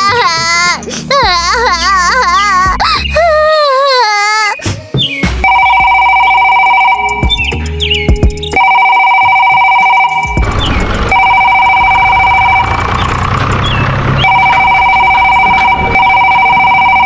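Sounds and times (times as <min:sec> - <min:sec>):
loud electronic tone: 0:09.4 - 0:17.0
low rumbling noise: 0:10.3 - 0:17.0.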